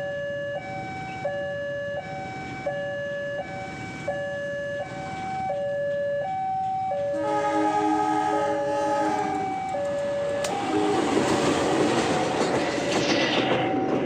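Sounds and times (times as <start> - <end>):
train horn: 7.1 - 9.8, 10.4 - 12.5.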